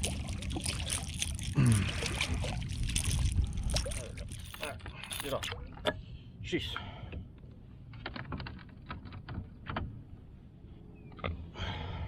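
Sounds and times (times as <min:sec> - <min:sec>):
fish and gear clicking: 0:00.0 - 0:05.5.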